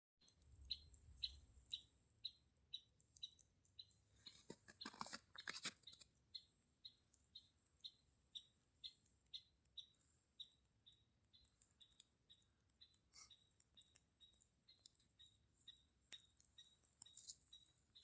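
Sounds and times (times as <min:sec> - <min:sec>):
rustle or crunch: 0:04.3 - 0:06.0.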